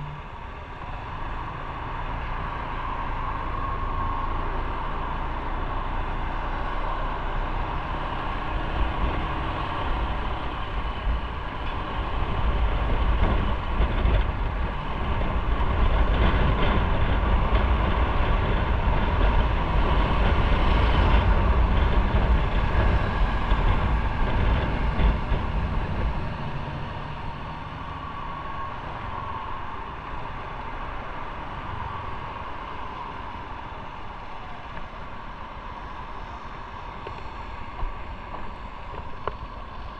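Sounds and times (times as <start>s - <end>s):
motorcycle engine rumble: 0.0s - 39.9s
wind rushing over microphone: 0.0s - 39.9s.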